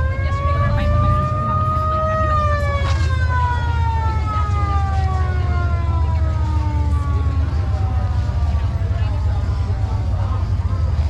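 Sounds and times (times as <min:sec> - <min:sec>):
siren wailing: 0:00.0 - 0:11.0
steady low rumble: 0:00.0 - 0:11.0.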